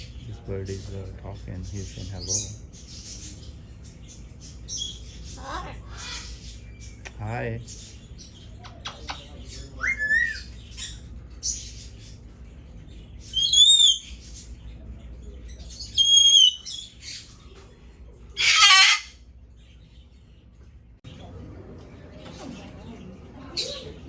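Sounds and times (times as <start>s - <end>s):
parrot chirping and squawking: 1.6s - 14.6s, 15.4s - 19.9s.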